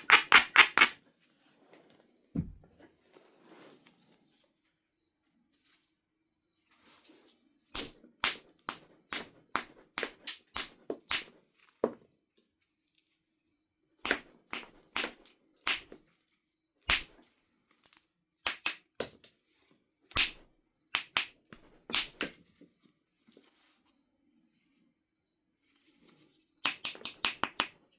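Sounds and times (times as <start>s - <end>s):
knapping tool striking stone: 16.9s - 17.2s.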